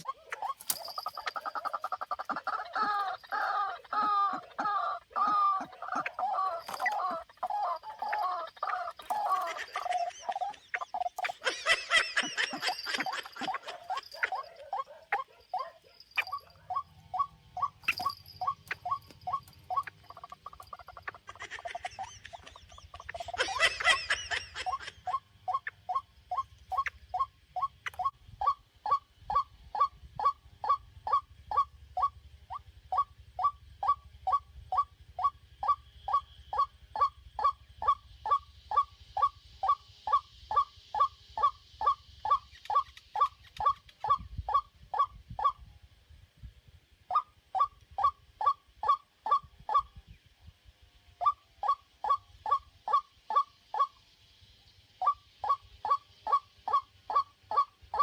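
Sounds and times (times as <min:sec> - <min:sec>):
waterhen calling: 0:00.0 - 0:45.6.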